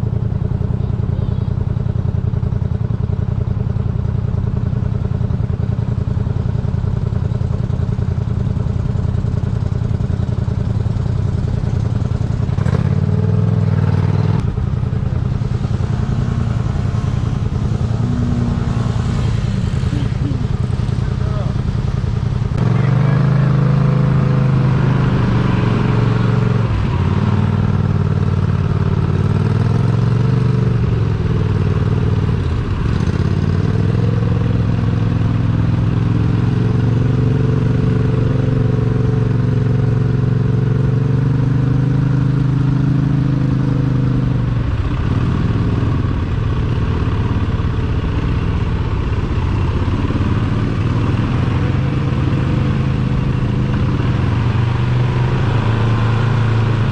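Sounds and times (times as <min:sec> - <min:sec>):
truck engine running under load: 0:14.3 - 0:29.0, 0:44.2 - 0:56.9.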